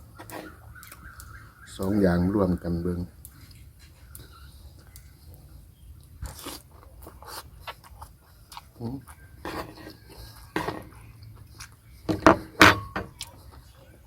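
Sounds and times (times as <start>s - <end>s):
crunchy chewing: 0.0s - 14.0s
wet mouth noises: 6.0s - 9.3s.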